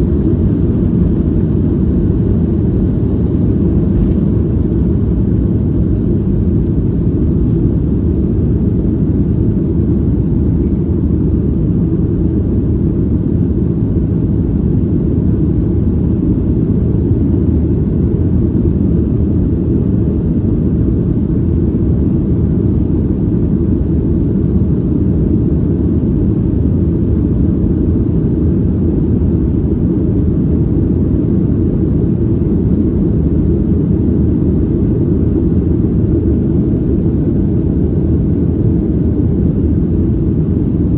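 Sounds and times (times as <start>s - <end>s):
jet engines low rumble: 0.0s - 40.9s.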